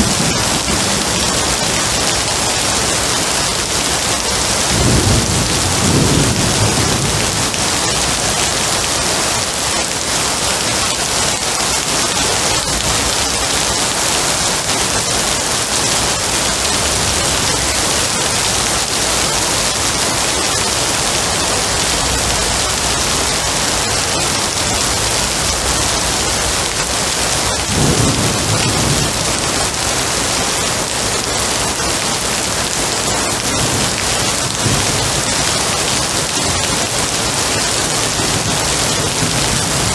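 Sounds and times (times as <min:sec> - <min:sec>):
heavy rain falling: 0:00.0 - 0:39.9
thunder rumbling: 0:00.0 - 0:39.9.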